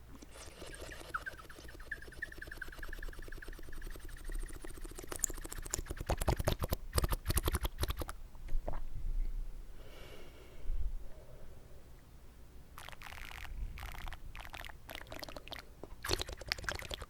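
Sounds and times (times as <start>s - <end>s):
slurping water in mouth: 0.2s - 2.0s, 12.8s - 17.0s.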